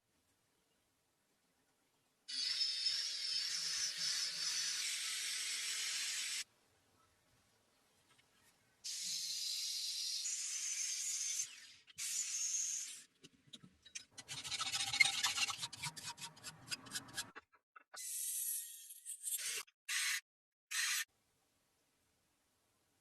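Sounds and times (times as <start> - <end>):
abrasive rubbing on steel blade: 13.9 - 17.4.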